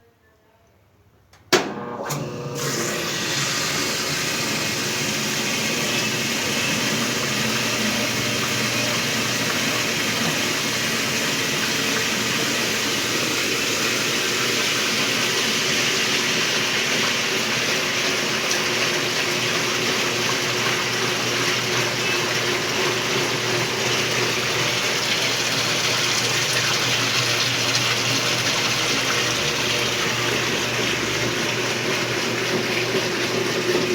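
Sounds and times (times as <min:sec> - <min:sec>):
washing machine click: 0:01.4 - 0:02.4
washing machine spinning: 0:01.4 - 0:33.9
water being pumped out: 0:02.1 - 0:33.9.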